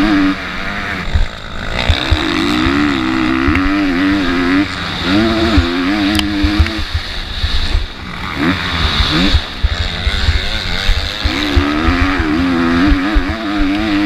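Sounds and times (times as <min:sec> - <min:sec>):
motocross bike engine revving: 0:00.0 - 0:14.0.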